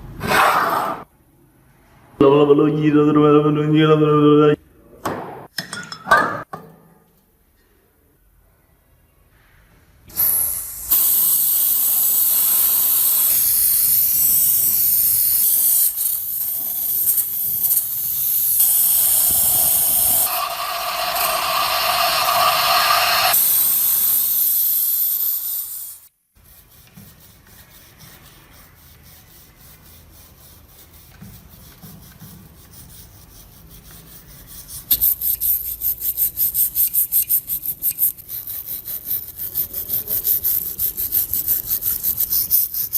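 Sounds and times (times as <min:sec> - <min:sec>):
metal grinding hiss: 0:10.1 - 0:26.1, 0:34.9 - 0:42.9
back-and-forth rubbing strokes: 0:11.0 - 0:24.1, 0:26.4 - 0:42.9.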